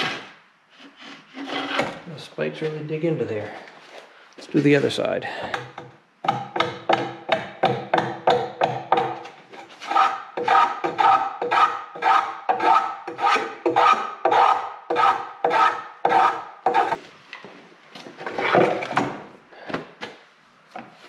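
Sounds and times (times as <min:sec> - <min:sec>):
hand tool working wood: 0:00.0 - 0:02.0, 0:05.5 - 0:17.0.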